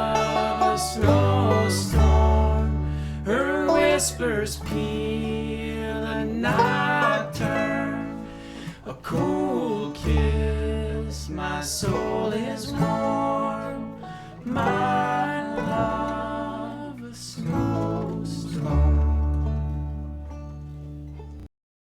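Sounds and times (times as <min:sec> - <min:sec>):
person singing long notes: 0:00.0 - 0:08.2
acoustic guitar picking: 0:00.0 - 0:21.4
banjo picking: 0:00.0 - 0:21.5
upright bass: 0:00.0 - 0:21.5.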